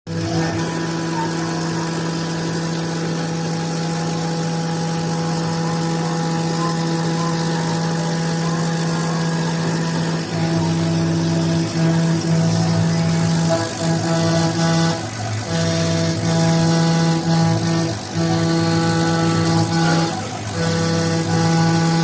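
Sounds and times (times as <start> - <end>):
router spindle humming and whining: 0.1 - 22.0.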